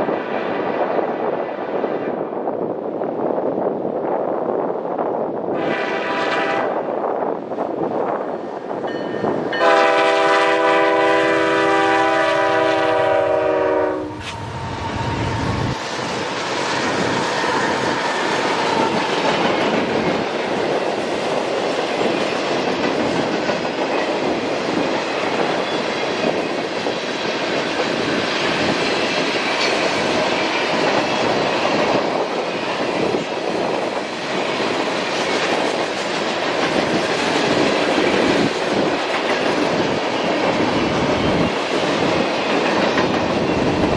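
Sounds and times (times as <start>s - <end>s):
train wheels rumbling on rail: 0.0s - 43.9s
locomotive air horn: 5.6s - 6.8s, 9.6s - 15.4s.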